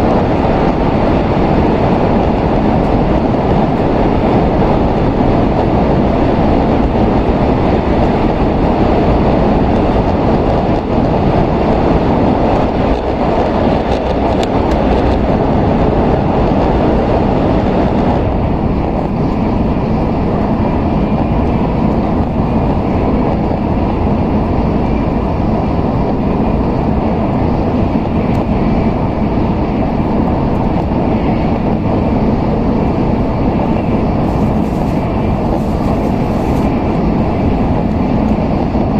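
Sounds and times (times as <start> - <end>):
train cabin rumble and rush: 0.0 - 38.9.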